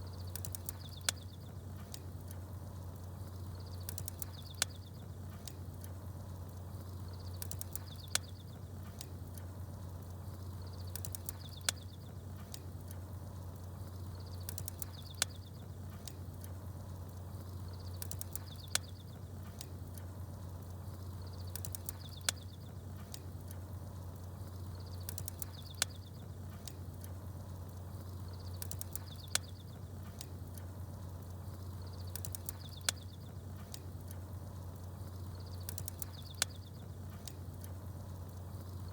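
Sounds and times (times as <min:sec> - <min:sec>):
faint high bird chirps: 0:00.0 - 0:01.5, 0:10.5 - 0:12.1, 0:31.7 - 0:33.3, 0:35.1 - 0:36.9
campfire crackling: 0:00.0 - 0:38.9
steady low hum: 0:00.0 - 0:38.9.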